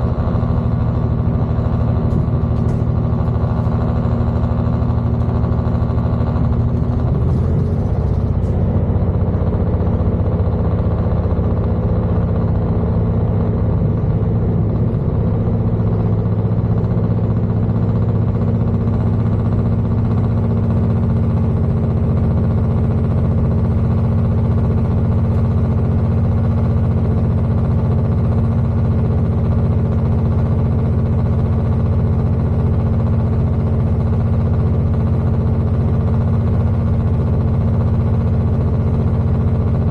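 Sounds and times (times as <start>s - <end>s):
train rolling noise: 0.0s - 17.5s
diesel engine drone: 0.0s - 39.9s.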